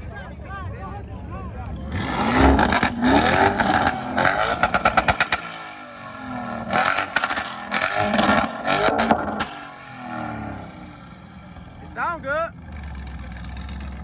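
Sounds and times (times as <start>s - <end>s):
car engine revving: 1.7s - 14.0s
exhaust pops and crackles: 2.0s - 11.8s.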